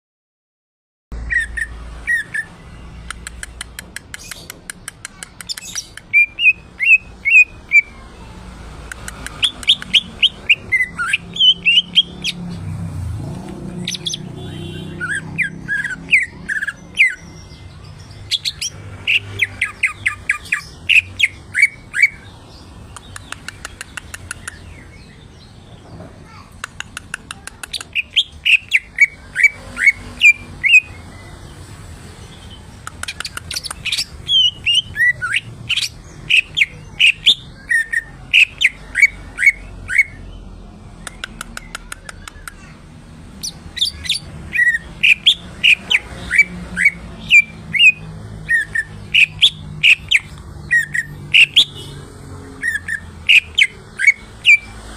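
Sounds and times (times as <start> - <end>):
bird whistling song: 1.2 - 2.7, 5.5 - 7.9, 9.4 - 12.4, 13.8 - 22.3, 27.9 - 31.1, 33.0 - 40.3, 43.4 - 51.9, 52.6 - 54.7
bird clicking ticks: 3.0 - 6.1, 8.8 - 10.0, 22.9 - 24.6, 26.5 - 28.1, 32.8 - 33.9, 41.0 - 42.7.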